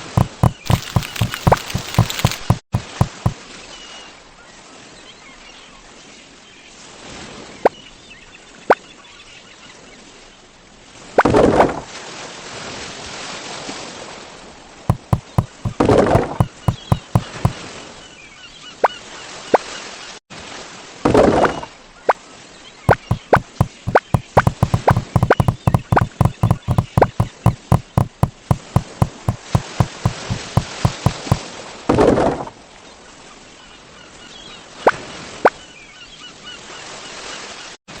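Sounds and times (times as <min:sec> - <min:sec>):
sharp knocks: 0:00.0 - 0:03.4, 0:14.9 - 0:17.5, 0:22.9 - 0:31.4.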